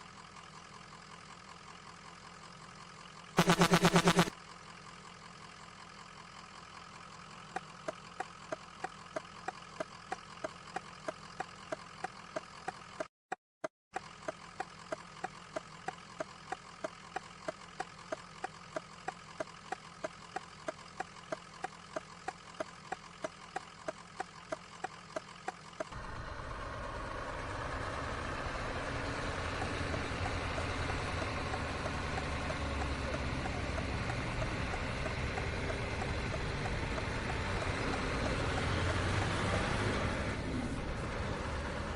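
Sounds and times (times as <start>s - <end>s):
truck engine idling: 0.0s - 13.0s, 14.0s - 41.9s
truck engine and road noise: 0.0s - 13.1s, 13.9s - 41.9s
turn signal ticking: 7.4s - 13.1s, 14.0s - 26.0s, 27.8s - 40.3s.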